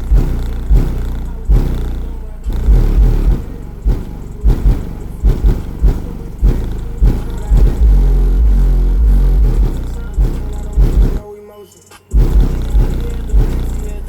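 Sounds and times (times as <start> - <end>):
booming bass music: 0.0 - 11.2, 12.1 - 14.0.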